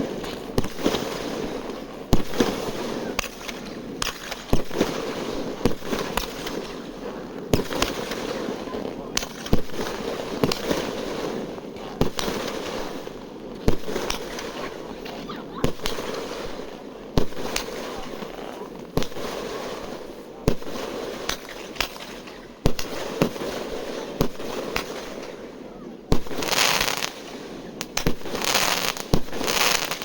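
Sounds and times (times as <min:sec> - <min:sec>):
fireworks bangs: 0:00.0 - 0:30.0
fireworks crackle and hiss: 0:00.0 - 0:30.0.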